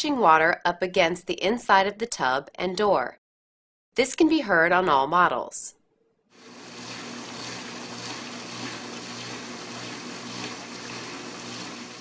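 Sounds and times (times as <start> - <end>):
dishwasher water sloshing: 6.4 - 12.0.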